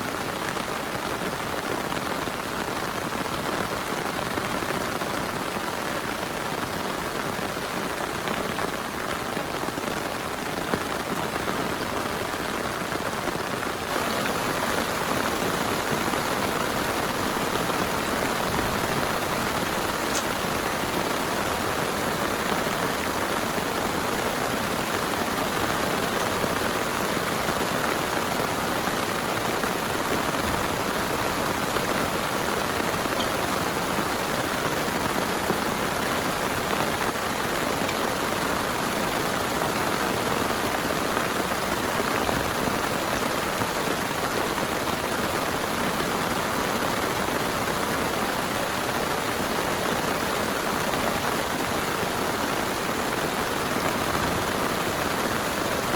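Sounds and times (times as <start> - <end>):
heavy rain pouring: 0.0 - 55.9.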